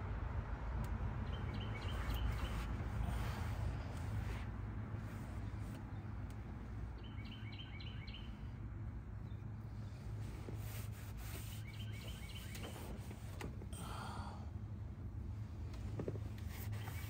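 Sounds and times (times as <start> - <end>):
low background rumble: 0.0 - 17.0
songbird singing: 1.1 - 3.3, 5.4 - 10.1, 11.3 - 13.0
rag wiping dashboard: 1.8 - 5.7, 9.9 - 13.7, 15.8 - 17.0.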